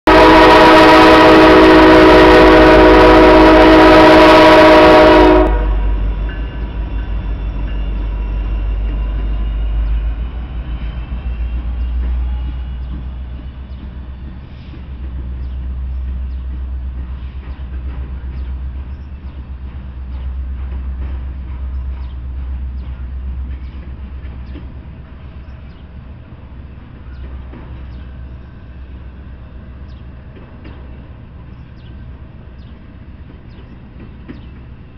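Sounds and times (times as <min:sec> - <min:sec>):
locomotive air horn: 0:00.1 - 0:06.1
freight train rumbling past: 0:00.1 - 0:34.9
wheels clicking over rail joints: 0:11.5 - 0:26.1, 0:26.8 - 0:34.8.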